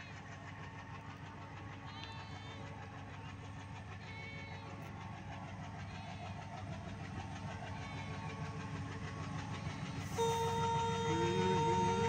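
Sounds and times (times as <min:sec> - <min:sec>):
train rumbling: 0:00.0 - 0:12.0
loud steady tone: 0:10.1 - 0:12.0.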